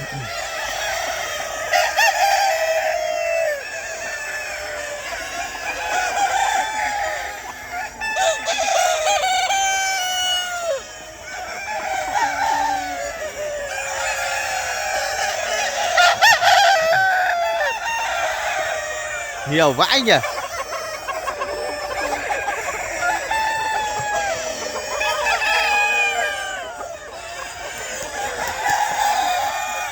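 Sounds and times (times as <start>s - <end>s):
chickens clucking: 0.0s - 29.9s
roosters crowing: 0.0s - 29.9s.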